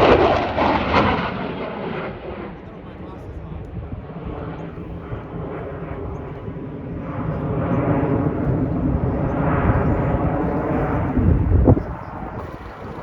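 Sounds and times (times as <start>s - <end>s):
aircraft engine roar with whine: 0.0s - 13.0s.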